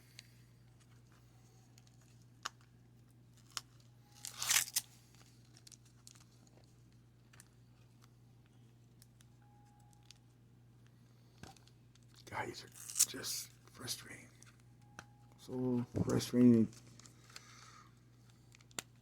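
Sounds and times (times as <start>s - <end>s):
card pack tearing open: 4.2s - 4.9s, 12.7s - 13.2s.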